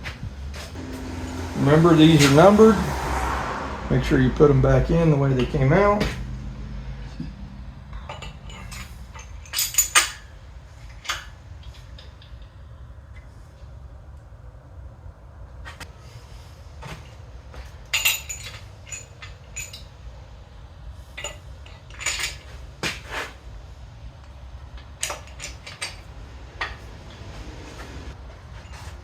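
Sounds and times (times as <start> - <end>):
metal engine parts clinking: 4.0 - 13.8, 16.8 - 29.0.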